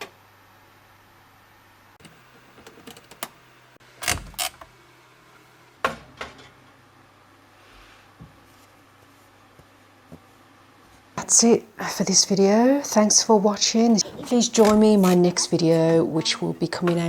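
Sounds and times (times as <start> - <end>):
low steady hum: 0.0 - 17.0
washing machine clicks and creak: 4.0 - 4.7.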